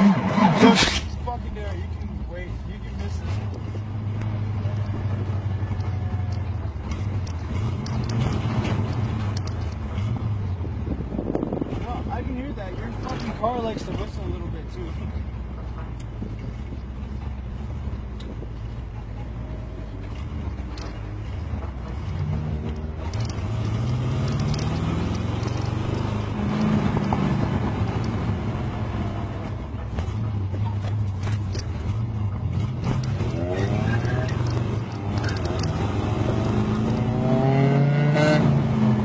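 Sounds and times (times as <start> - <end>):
engine revving from inside cab: 32.6 - 39.0.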